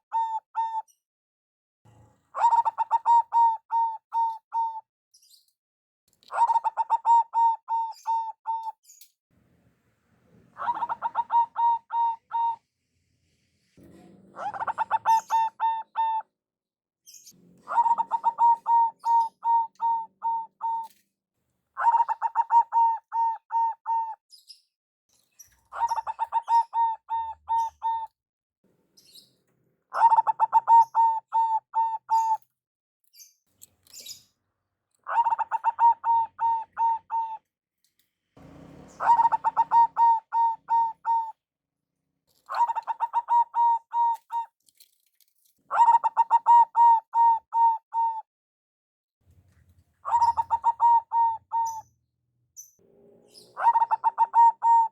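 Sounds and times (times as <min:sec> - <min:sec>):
dove singing stuttering coos: 0:00.0 - 0:00.8, 0:02.3 - 0:04.8, 0:06.3 - 0:08.7, 0:10.4 - 0:12.7, 0:14.3 - 0:16.2, 0:17.1 - 0:20.9, 0:21.8 - 0:24.2, 0:25.5 - 0:28.1, 0:29.9 - 0:32.4, 0:35.0 - 0:37.4, 0:38.4 - 0:41.4, 0:42.4 - 0:44.5, 0:45.7 - 0:48.2, 0:50.0 - 0:52.0, 0:52.9 - 0:54.9.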